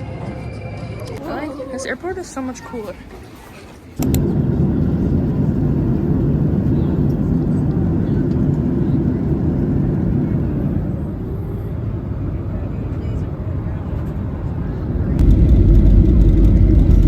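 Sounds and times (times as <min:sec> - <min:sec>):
vehicle rumble from inside cabin: 0:04.0 - 0:17.0.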